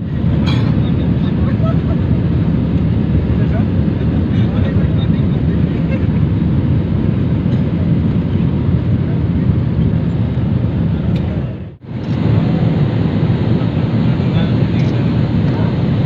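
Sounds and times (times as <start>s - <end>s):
jet engine rumble in cabin: 0.0s - 16.0s
rushing air: 5.5s - 16.0s.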